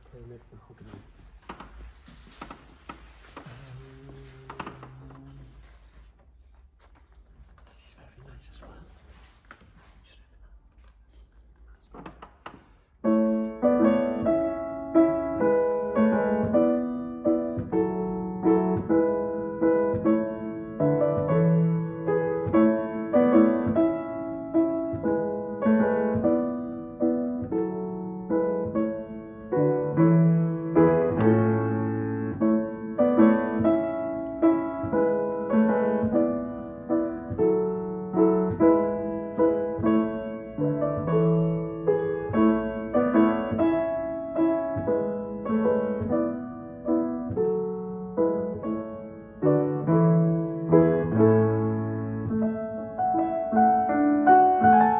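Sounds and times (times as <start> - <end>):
piano chords: 12.8 - 54.9.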